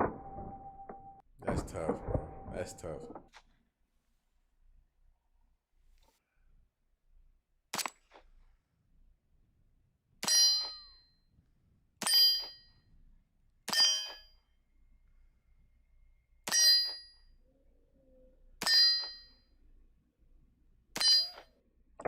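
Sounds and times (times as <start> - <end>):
metallic clang of steel target: 21.0 - 21.5.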